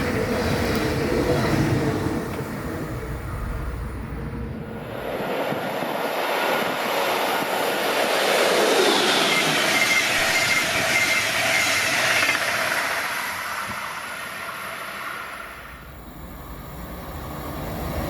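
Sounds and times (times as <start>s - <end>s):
train passing with rushing rail noise: 0.0s - 18.0s
train whine dropping in pitch: 7.4s - 17.3s.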